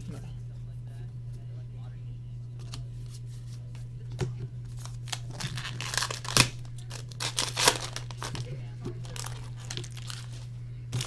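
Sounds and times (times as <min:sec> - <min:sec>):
card packs crinkling and rustling: 0:02.6 - 0:11.0.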